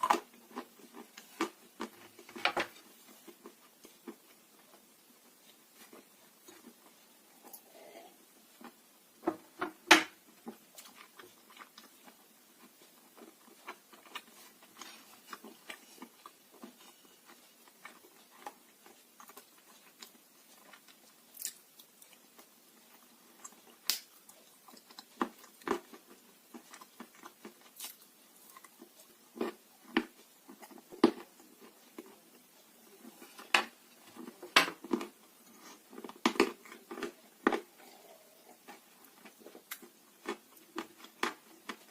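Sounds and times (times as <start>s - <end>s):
dry clay crunching when chewed: 10.4s - 41.9s.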